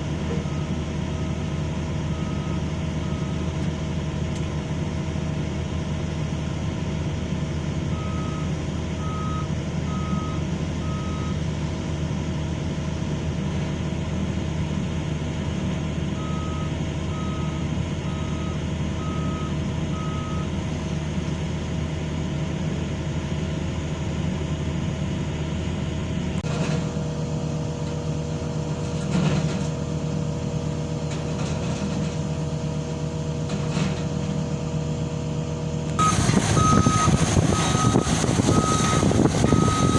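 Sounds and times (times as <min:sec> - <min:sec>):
excavator diesel engines running: 0:00.0 - 0:39.9
machine whine: 0:36.0 - 0:39.9
travel alarm beeping: 0:36.0 - 0:39.9.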